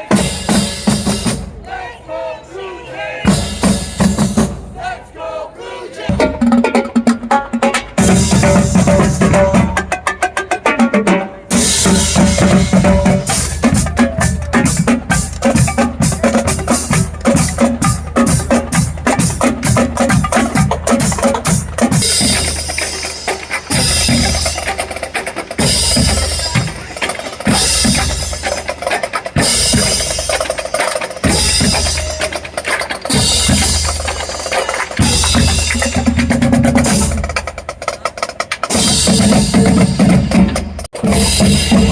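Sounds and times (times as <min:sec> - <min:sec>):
drums playing fast rhythm: 0:00.0 - 0:01.7, 0:03.2 - 0:04.9, 0:06.1 - 0:41.9.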